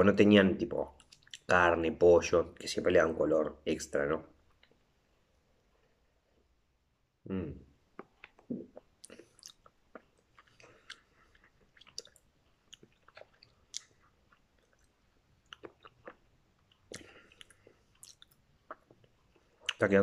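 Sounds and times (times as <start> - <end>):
faint chewing of noodles: 7.8 - 19.9.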